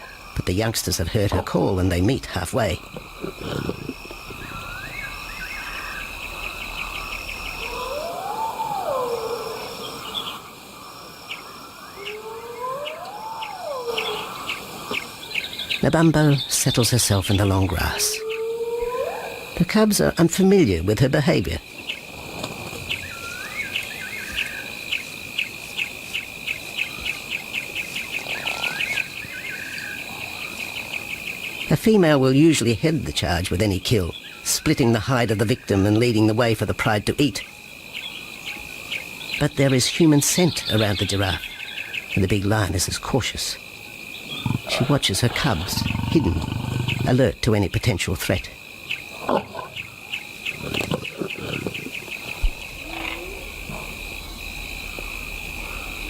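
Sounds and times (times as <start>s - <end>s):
insects chirping: 0.0s - 56.0s
rising and falling whistled call: 11.9s - 14.6s.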